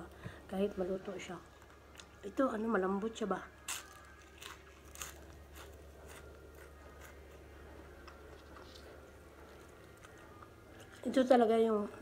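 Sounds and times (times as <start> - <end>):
steady low hum: 0.0 - 12.0
quiet chewing: 3.7 - 11.1.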